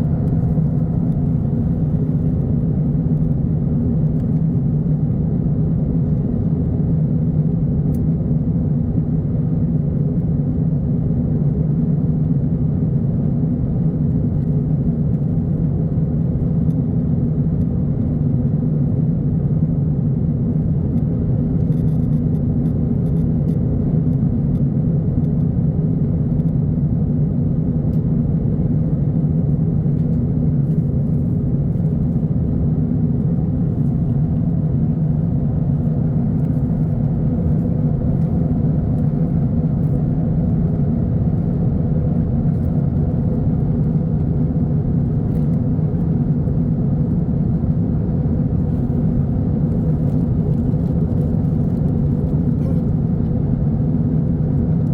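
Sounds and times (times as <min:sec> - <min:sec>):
airliner cabin rumble: 0:00.0 - 0:54.9.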